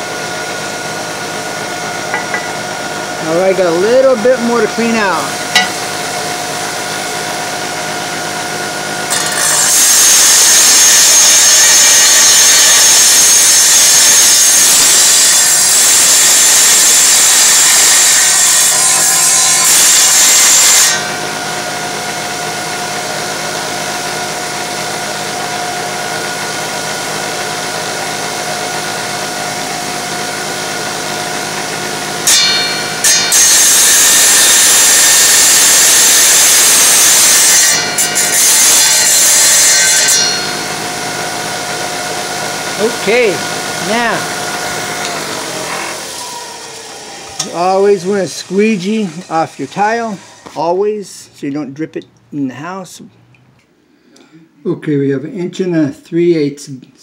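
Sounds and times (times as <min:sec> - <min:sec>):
tile saw motor hum: 0:00.0 - 0:50.7
saw blade cutting tile: 0:03.7 - 0:06.2, 0:09.1 - 0:21.2, 0:26.4 - 0:50.7.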